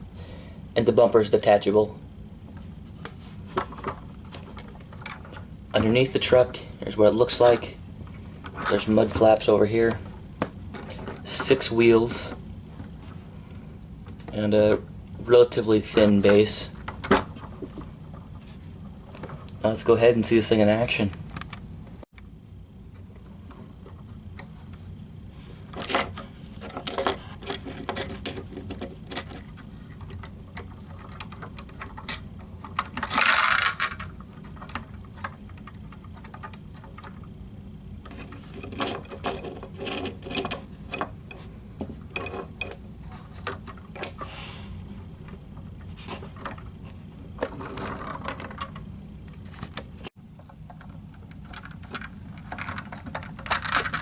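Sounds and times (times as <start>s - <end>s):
steady low hum: 0.0s - 54.0s
plastic parts clicking: 49.5s - 54.0s.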